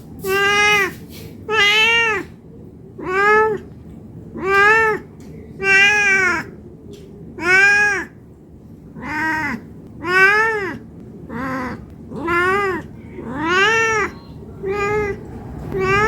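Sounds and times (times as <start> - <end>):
cat meowing: 0.2 - 2.3, 3.0 - 3.7, 4.4 - 6.6, 7.4 - 8.2, 9.0 - 16.0.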